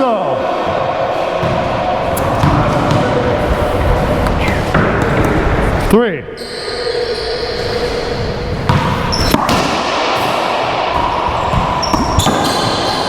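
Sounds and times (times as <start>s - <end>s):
racquetball cracking off racquets and walls: 1.4s - 5.9s, 8.4s - 13.0s.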